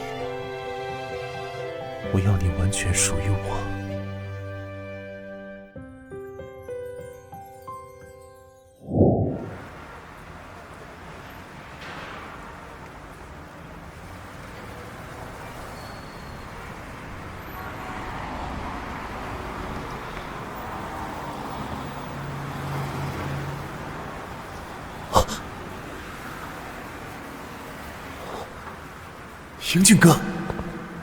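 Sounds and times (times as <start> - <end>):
passing cars: 8.8 - 31.0.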